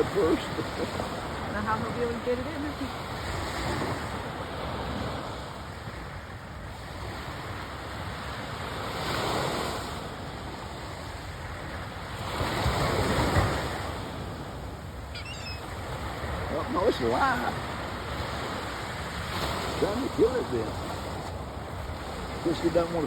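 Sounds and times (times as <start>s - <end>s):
surf breaking on beach: 0.0s - 6.1s, 6.7s - 23.0s.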